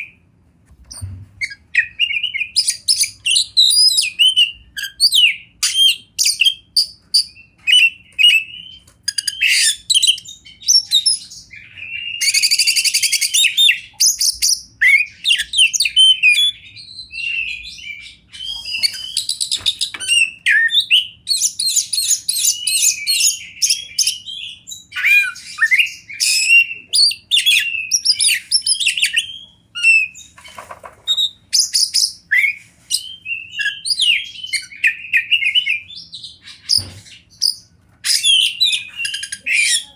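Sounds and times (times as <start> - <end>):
bird singing whistled phrases: 1.4 - 19.5, 20.1 - 30.2
harsh buzzy bird rattles: 30.4 - 31.2.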